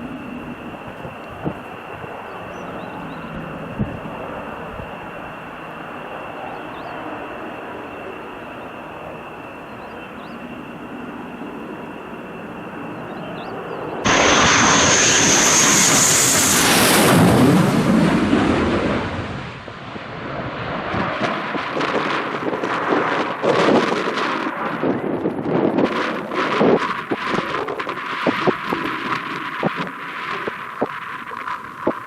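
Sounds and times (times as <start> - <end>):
jet engine whine: 0.0 - 32.0
jet passing close: 0.0 - 32.0.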